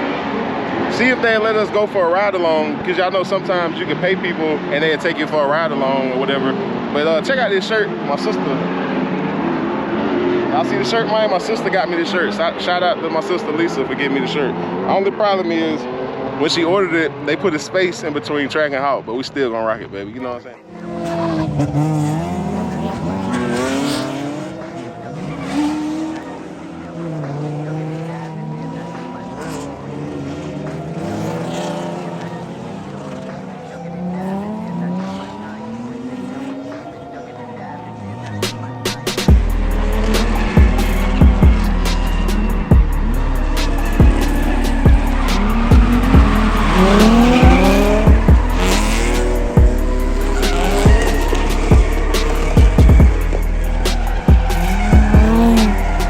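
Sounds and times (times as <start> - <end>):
tires squealing: 0.0 - 19.4, 20.2 - 56.0
car engines revving: 0.0 - 56.0
music with steady beat: 38.4 - 56.0.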